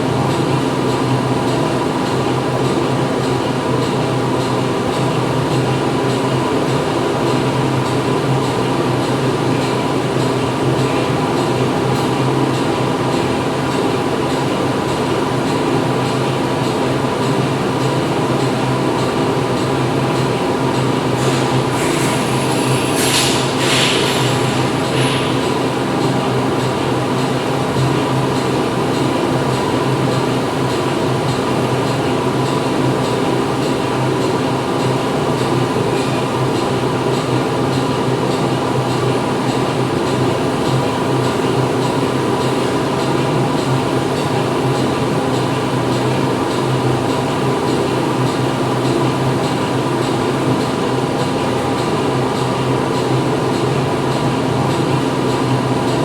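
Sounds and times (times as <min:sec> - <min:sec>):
industrial machinery humming: 0:00.0 - 0:56.0
short high hiss: 0:21.2 - 0:25.4.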